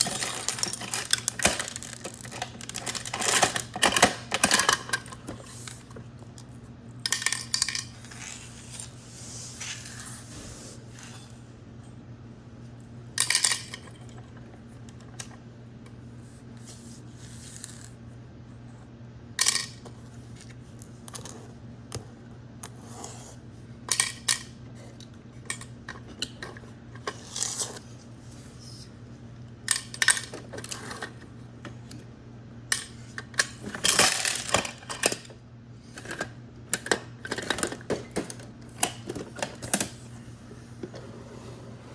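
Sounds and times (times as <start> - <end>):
plastic toy parts clattering: 0.0 - 5.7, 7.1 - 8.4, 33.3 - 35.3, 36.0 - 40.0
steady low hum: 0.0 - 41.9.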